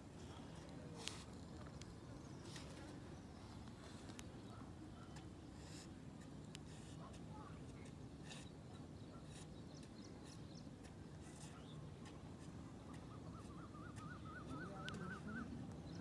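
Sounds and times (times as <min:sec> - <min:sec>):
warbling bird call: 0:12.9 - 0:15.6.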